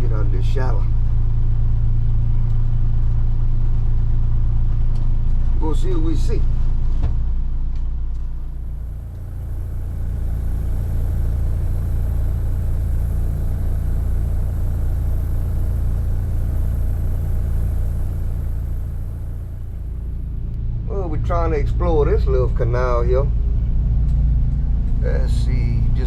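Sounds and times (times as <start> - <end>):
outboard motor running: 8.3 - 26.0.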